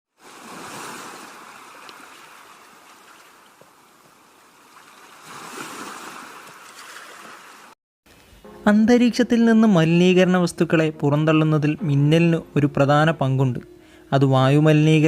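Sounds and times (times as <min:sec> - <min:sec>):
waves washing in: 0:00.1 - 0:07.8.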